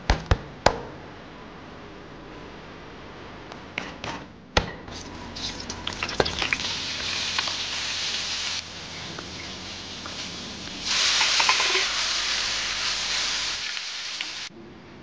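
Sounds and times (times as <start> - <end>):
meat sizzling in a frying pan: 5.4 - 14.5.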